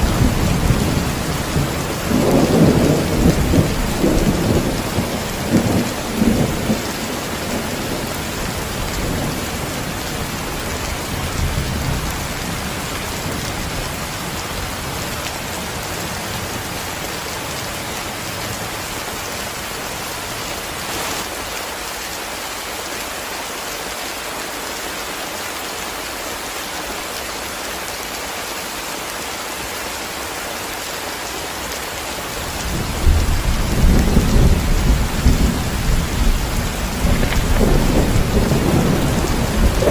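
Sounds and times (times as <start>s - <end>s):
thunder rumble: 0.0s - 9.9s, 32.7s - 39.9s
heavy rain: 0.0s - 39.9s.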